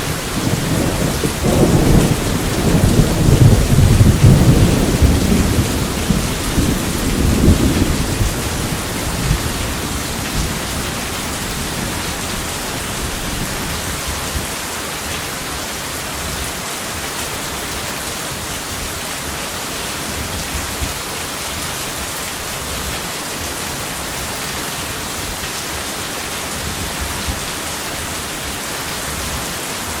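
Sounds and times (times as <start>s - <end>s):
low rumble of thunder: 0.0s - 14.5s
heavy rain: 0.0s - 30.0s.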